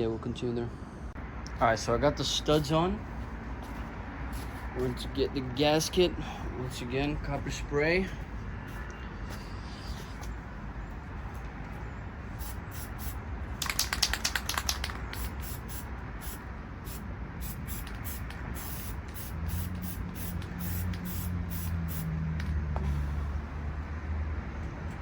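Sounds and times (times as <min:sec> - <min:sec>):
aerosol spray hissing: 0:12.4 - 0:13.2, 0:15.0 - 0:22.1
aerosol can rattling: 0:12.4 - 0:22.0.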